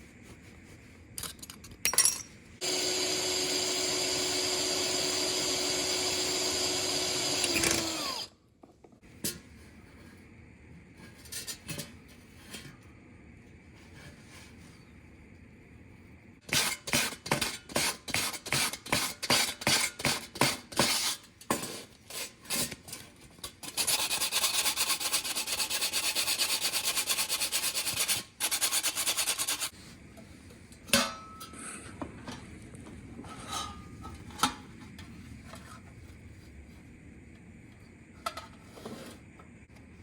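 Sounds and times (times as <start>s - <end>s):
hand file rasping on metal: 23.6s - 29.7s.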